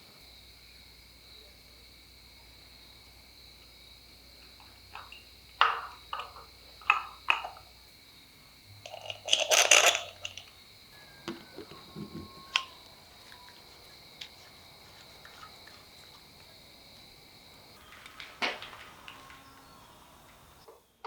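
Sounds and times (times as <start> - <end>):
crickets chirping: 0.0 - 21.0
small metal parts clinking: 8.8 - 10.5.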